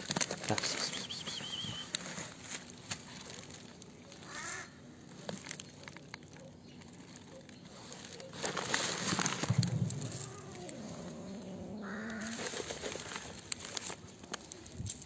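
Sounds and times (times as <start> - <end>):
short bird call: 0.8 - 1.9.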